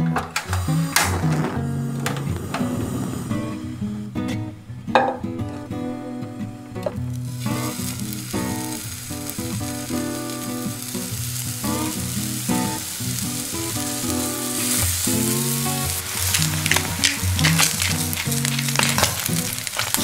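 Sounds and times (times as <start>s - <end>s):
background music: 0.0s - 20.0s
meat sizzling in frying pan: 7.0s - 20.0s.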